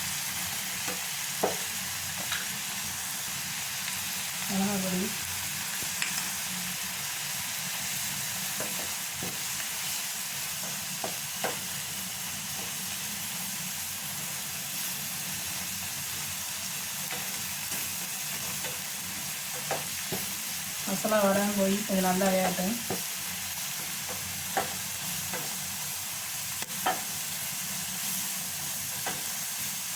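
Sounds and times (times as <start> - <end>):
onions sizzling in butter: 0.0 - 29.9
utensil clicking against pan: 17.1 - 17.8, 19.5 - 20.3, 23.8 - 25.6.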